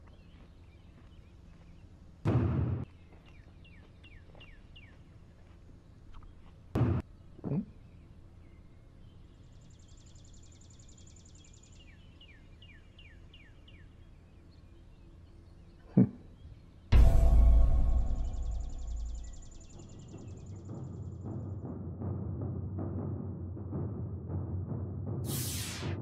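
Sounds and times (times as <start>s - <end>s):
small birds chirping: 0.0s - 2.2s, 2.9s - 17.0s, 18.3s - 21.6s.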